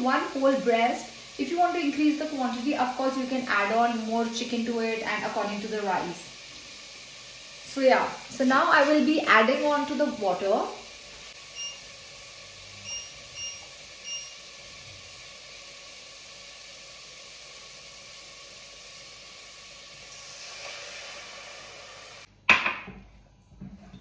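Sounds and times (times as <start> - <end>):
chicken sizzling in oil: 0.0 - 22.3
cookware knock: 22.5 - 23.0.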